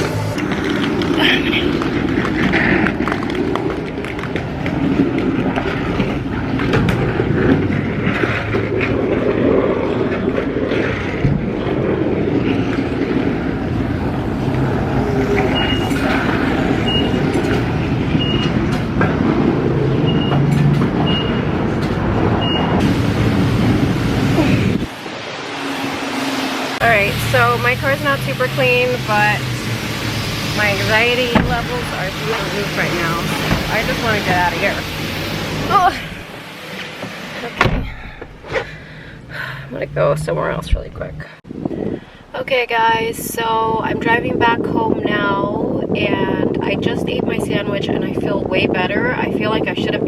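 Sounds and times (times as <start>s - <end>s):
pressure washer spraying: 22.8s - 37.6s.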